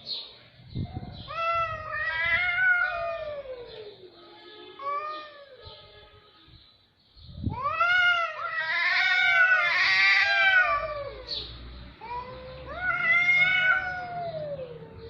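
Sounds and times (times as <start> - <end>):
cats caterwauling: 1.0 - 4.1, 4.8 - 5.6, 7.5 - 15.0.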